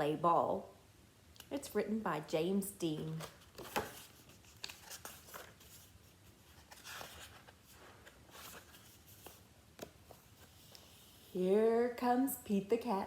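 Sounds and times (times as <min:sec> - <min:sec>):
paper rustling: 0:03.0 - 0:11.3.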